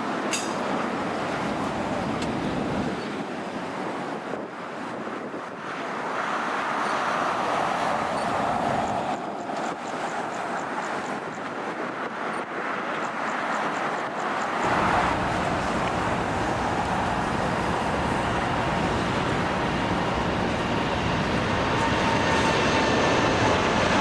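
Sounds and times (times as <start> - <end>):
jet engines roaring: 0.0 - 3.9, 5.8 - 24.0
passing road traffic: 6.0 - 9.3, 14.5 - 24.0.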